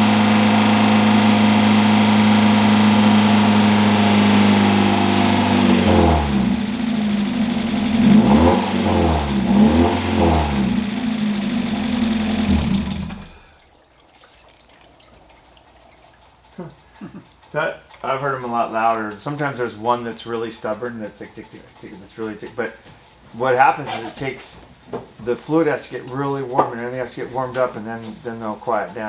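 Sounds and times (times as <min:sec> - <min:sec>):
car engine idling and revving: 0:00.0 - 0:13.5.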